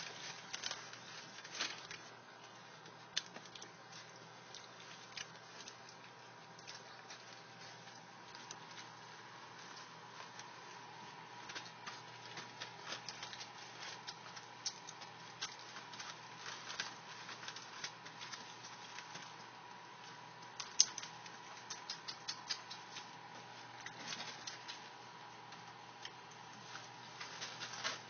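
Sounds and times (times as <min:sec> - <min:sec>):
puppies suckling: 0:02.7 - 0:26.4.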